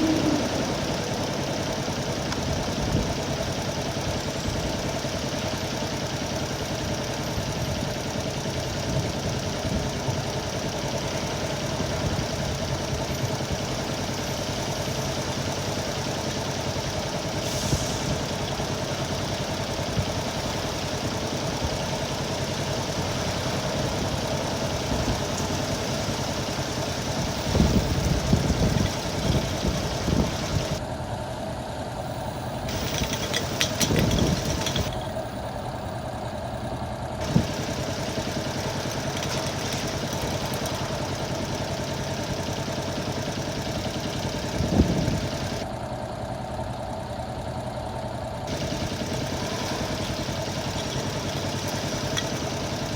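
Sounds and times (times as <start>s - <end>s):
small motorcycle engine running: 0.0s - 52.9s
wind noise: 27.2s - 30.8s, 32.7s - 35.2s, 44.6s - 45.4s
wind gusts buffeting microphone: 27.3s - 30.8s.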